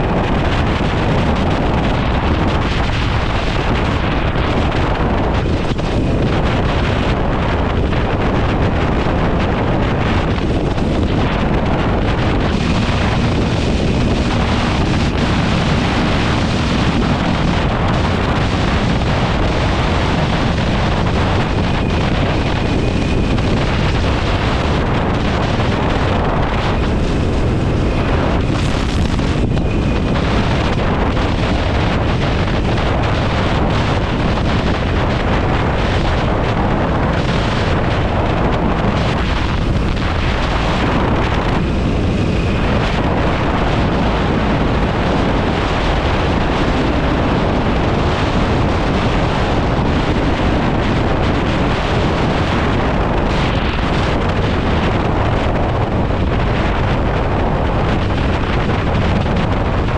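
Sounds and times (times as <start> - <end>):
wind rushing over microphone: 0.0 - 59.9
motorcycle engine running: 8.6 - 33.1.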